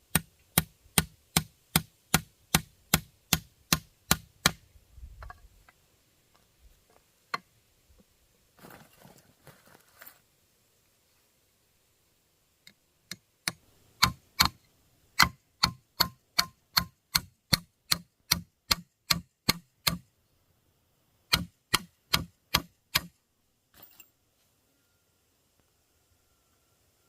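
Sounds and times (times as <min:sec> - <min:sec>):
hand tool striking wood: 0:00.0 - 0:04.6, 0:13.1 - 0:14.6, 0:15.2 - 0:20.0, 0:21.3 - 0:23.2.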